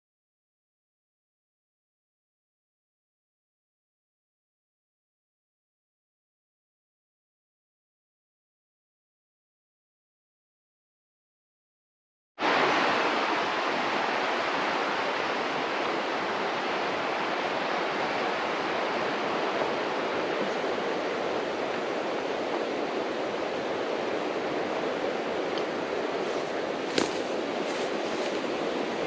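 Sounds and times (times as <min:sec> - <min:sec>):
rushing river water: 0:12.4 - 0:29.0.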